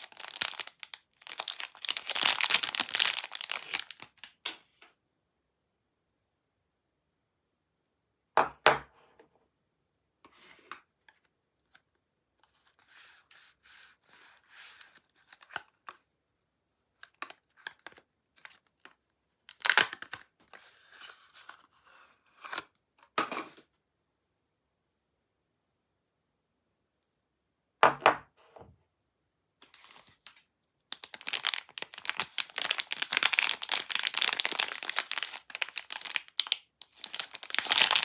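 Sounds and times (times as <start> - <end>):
packaging crinkling: 0.0 - 4.4, 19.5 - 20.2, 29.8 - 38.0
packaging tearing: 0.0 - 4.4, 19.5 - 20.2, 30.9 - 38.0.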